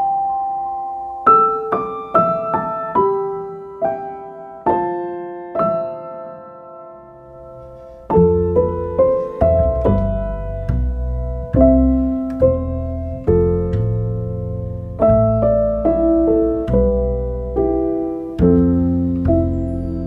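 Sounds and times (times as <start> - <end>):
soft piano music: 0.0 - 20.0.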